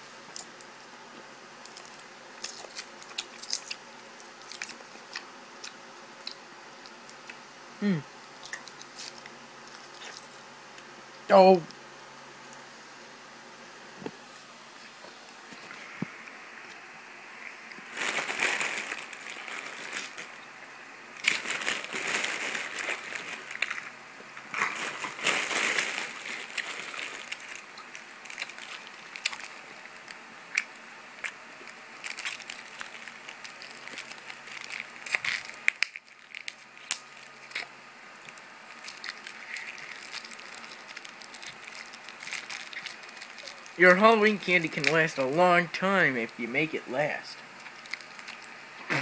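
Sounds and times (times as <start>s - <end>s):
candy chewing and crunching: 0.3s - 10.5s, 15.1s - 49.0s
plastic wrapper crinkling: 1.6s - 5.3s, 17.6s - 20.5s, 21.2s - 45.2s, 47.5s - 48.6s.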